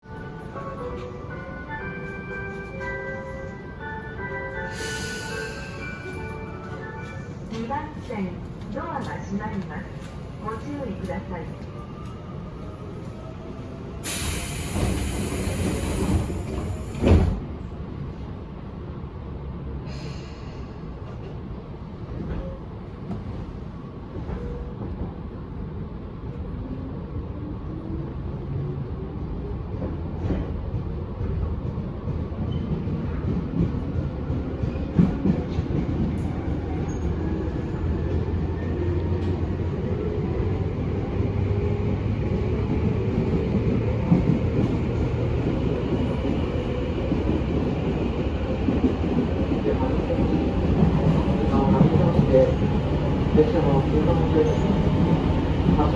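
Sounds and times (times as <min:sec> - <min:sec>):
train wheels rumbling on rail: 0:04.8 - 0:18.8, 0:27.5 - 0:55.9
train wheels and motors rumbling: 0:13.8 - 0:18.4.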